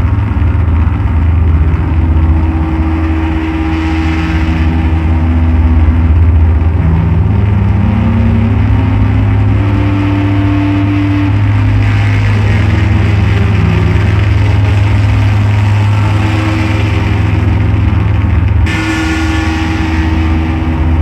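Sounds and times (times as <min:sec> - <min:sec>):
electronic drone-noise music: 0:00.0 - 0:21.0.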